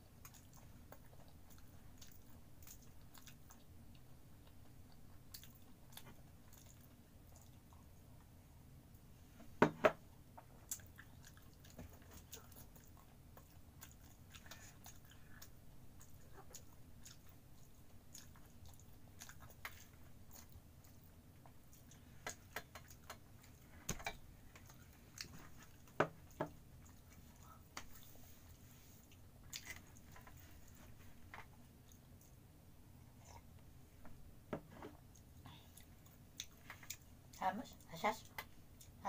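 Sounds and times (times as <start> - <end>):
person chewing fried food: 0.0 - 8.4, 10.3 - 33.6, 34.9 - 37.4.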